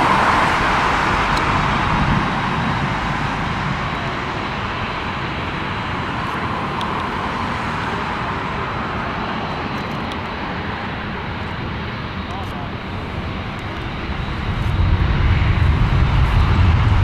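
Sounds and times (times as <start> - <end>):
jet airliner taking off: 0.0 - 17.0.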